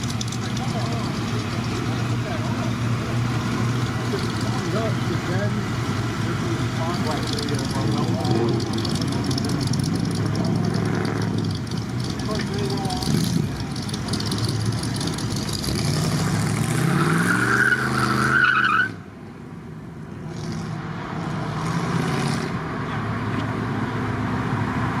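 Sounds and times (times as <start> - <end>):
car engine revving: 0.0 - 18.8
road noise: 0.0 - 25.0.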